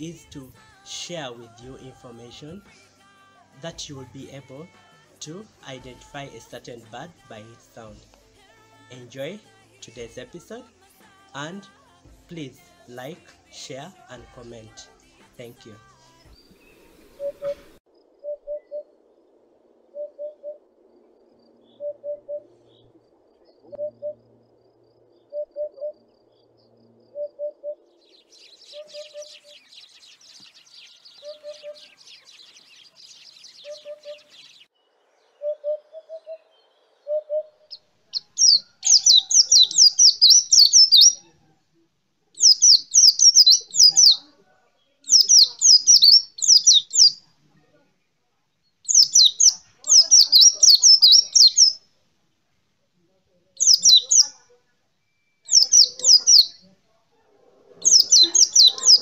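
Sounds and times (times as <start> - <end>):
hoopoe soft low hoots: 16.7 - 28.0
bird high rapid twittering: 27.2 - 34.7, 37.0 - 41.3, 42.4 - 44.3, 45.1 - 47.2, 48.9 - 51.8, 53.6 - 54.4, 55.4 - 56.6, 57.7 - 59.0.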